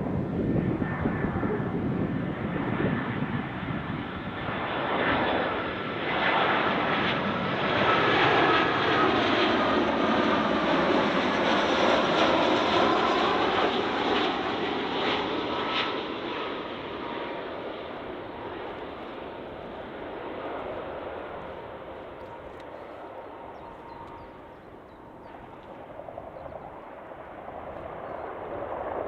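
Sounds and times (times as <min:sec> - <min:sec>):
faint engine whine: 0:00.0 - 0:29.0
jet airliner passing overhead: 0:00.0 - 0:29.0.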